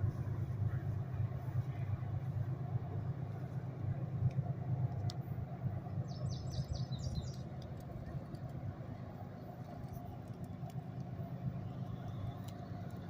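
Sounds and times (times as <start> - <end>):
diesel locomotive rumble: 0.0 - 13.0
bird chirping: 6.0 - 7.5.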